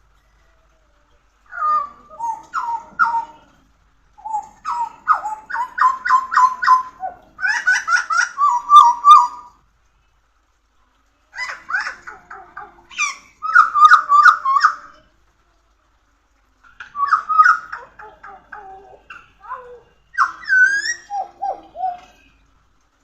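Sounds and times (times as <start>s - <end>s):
bird singing: 1.5s - 3.6s, 4.2s - 9.5s, 11.4s - 15.0s, 16.9s - 22.4s.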